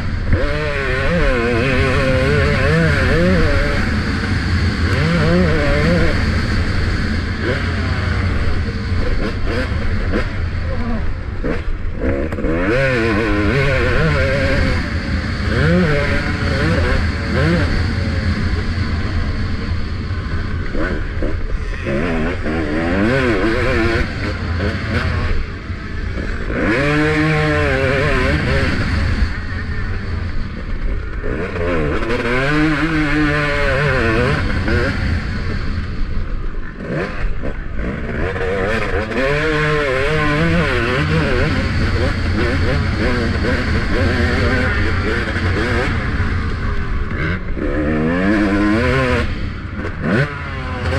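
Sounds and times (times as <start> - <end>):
low wind rumble: 0.0 - 50.8
motorbike engine revving: 0.0 - 50.9.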